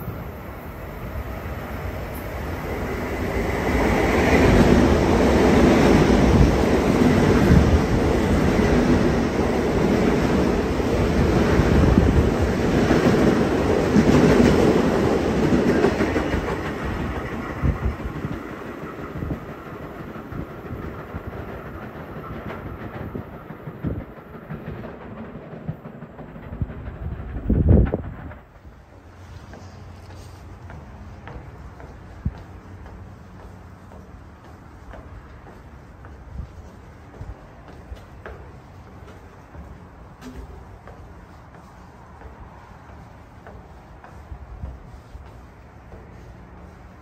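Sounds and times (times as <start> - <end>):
train wheels rumbling and clattering: 0.0 - 47.0.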